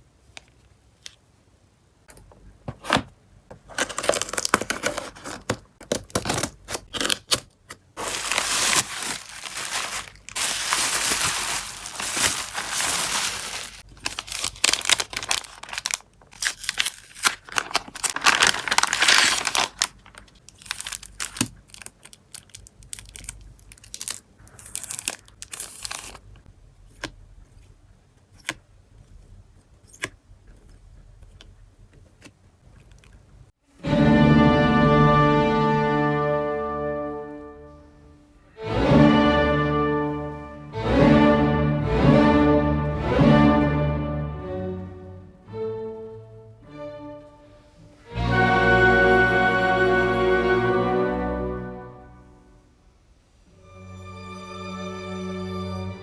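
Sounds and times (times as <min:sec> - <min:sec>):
packaging ripping and rustling: 0:03.6 - 0:26.2.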